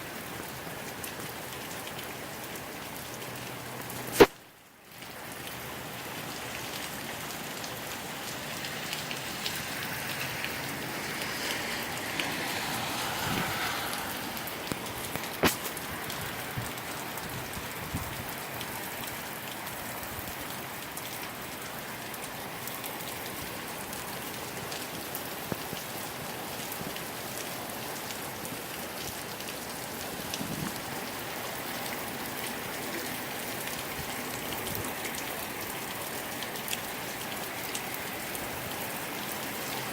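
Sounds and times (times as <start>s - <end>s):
moderate rain falling: 0.0s - 39.9s
raindrop taps: 13.9s - 17.4s.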